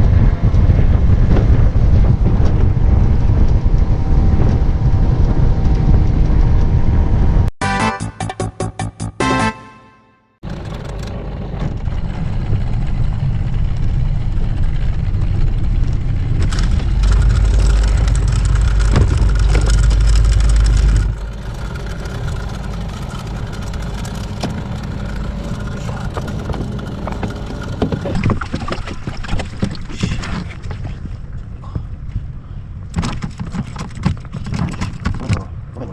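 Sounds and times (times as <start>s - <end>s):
wind: 0.0s - 7.5s, 10.4s - 35.9s
background music: 7.6s - 10.3s
outboard motor running: 10.4s - 31.0s
water noise: 10.5s - 35.3s.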